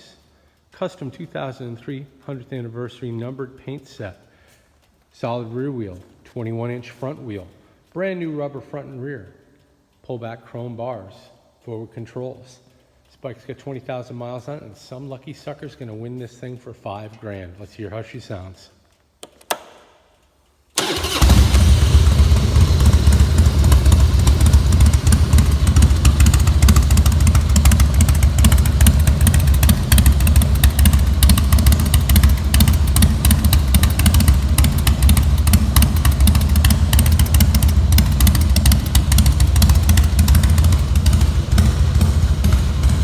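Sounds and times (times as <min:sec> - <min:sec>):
motorcycle engine idling: 0:20.8 - 0:43.0.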